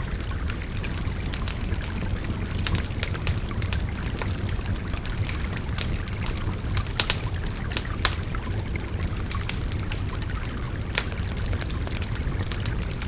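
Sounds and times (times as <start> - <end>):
wood fire crackling and popping: 0.0 - 13.0.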